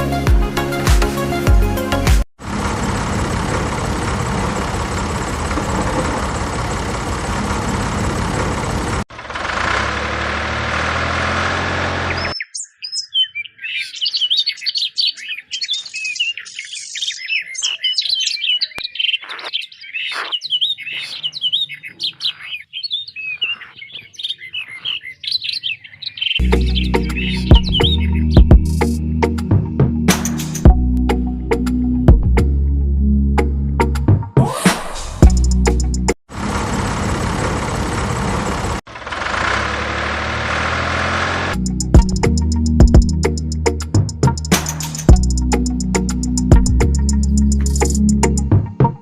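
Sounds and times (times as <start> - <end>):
birds chirping and twittering: 12.0 - 29.2.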